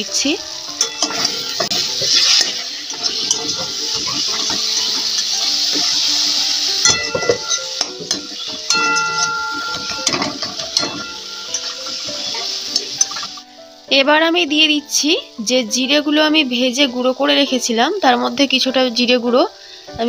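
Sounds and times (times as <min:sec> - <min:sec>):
food sizzling in oil: 0:00.0 - 0:20.0
soft background music: 0:00.0 - 0:20.0
metal spatula scraping a pan: 0:00.7 - 0:13.4.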